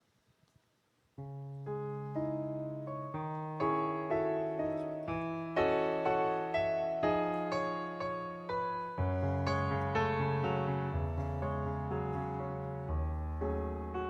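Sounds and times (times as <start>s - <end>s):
slow piano playing: 1.2s - 14.0s.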